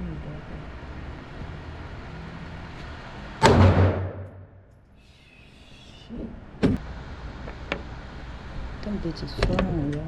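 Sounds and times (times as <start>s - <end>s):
gunshot: 3.4s - 4.5s.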